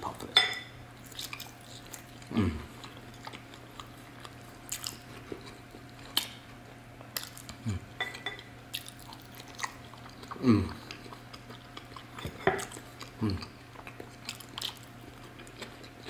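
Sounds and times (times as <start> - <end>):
chewing and biting food: 1.0 - 7.9, 8.7 - 16.0.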